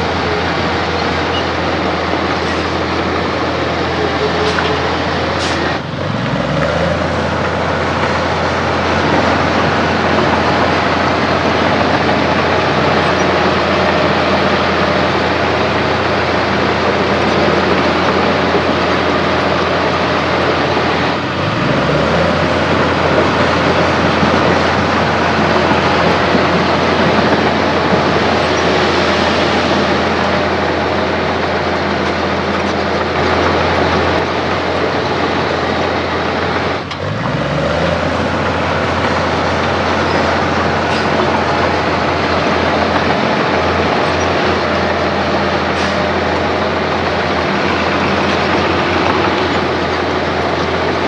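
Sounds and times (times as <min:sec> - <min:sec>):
heavy diesel engine under load: 0:00.0 - 0:51.0.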